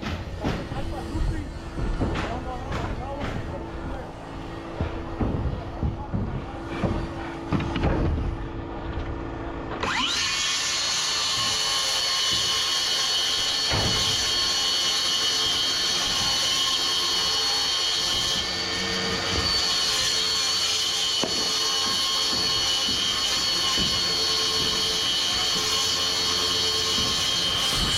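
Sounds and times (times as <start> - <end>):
power cutting tool whining: 9.8 - 27.9.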